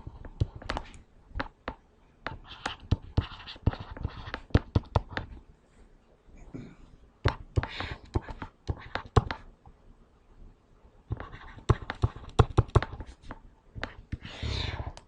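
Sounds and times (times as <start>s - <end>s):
pen scratching: 2.3s - 5.4s, 7.6s - 9.4s, 11.1s - 15.0s
sharp taps and clicks: 7.2s - 9.5s.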